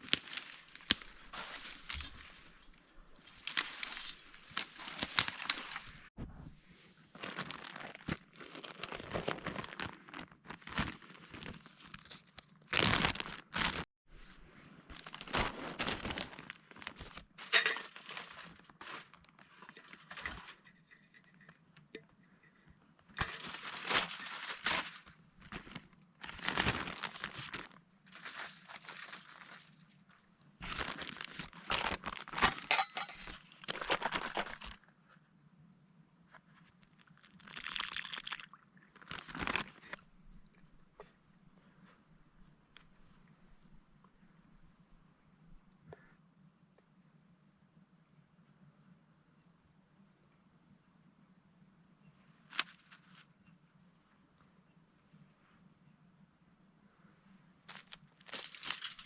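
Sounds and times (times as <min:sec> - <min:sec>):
material crinkling and rustling: 0:00.0 - 0:13.9, 0:14.8 - 0:35.1, 0:38.9 - 0:44.9, 0:52.1 - 0:54.1, 0:57.5 - 0:59.0.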